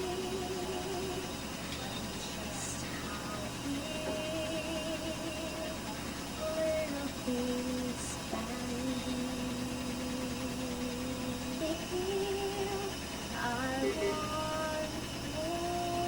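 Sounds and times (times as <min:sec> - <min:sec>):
person humming a slow melody: 0:06.4 - 0:16.0.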